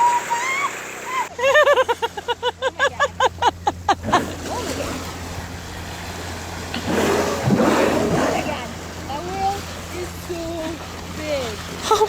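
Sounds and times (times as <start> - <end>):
rushing water: 0.0 - 1.4, 4.0 - 12.0
boat engine hum: 0.0 - 12.0.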